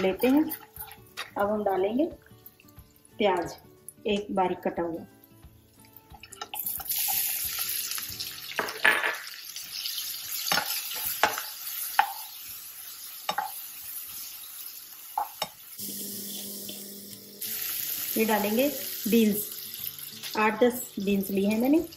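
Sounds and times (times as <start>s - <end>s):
onions sizzling in hot oil: 5.2s - 21.9s
spoon scraping and tapping pan: 10.4s - 12.3s, 13.3s - 13.6s, 15.2s - 15.6s.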